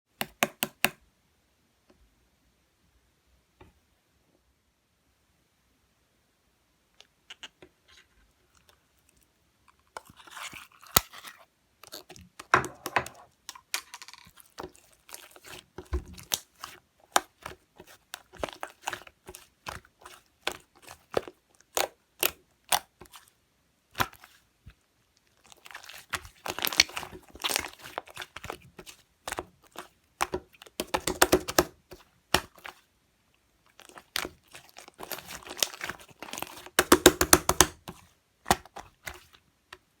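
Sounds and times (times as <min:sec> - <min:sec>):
slime squishing with sticky pops: 0:09.7 - 0:12.5, 0:14.3 - 0:40.0.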